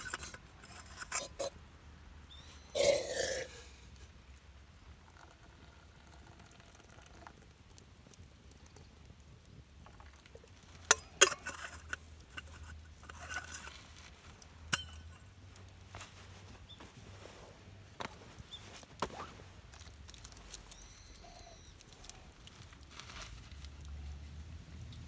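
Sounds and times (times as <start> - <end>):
handling sounds: 0.0 - 1.5, 10.9 - 23.8
sharp clinks and knocks: 14.7 - 15.2.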